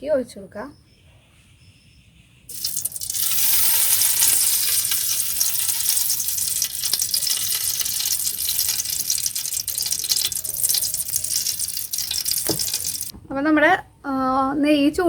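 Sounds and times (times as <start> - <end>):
ghee sizzling in a hot pan: 2.5 - 13.1.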